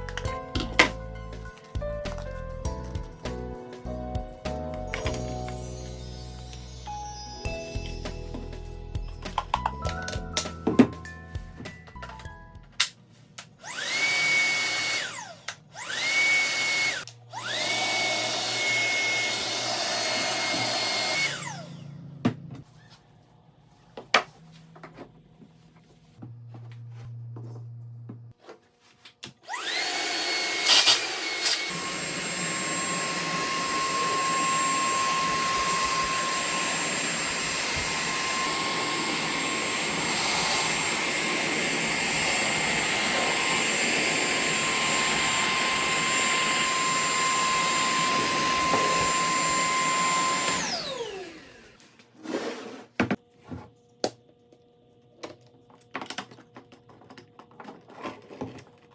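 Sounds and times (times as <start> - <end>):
vacuum cleaner motor whine: 13.6 - 23.0, 29.5 - 55.3.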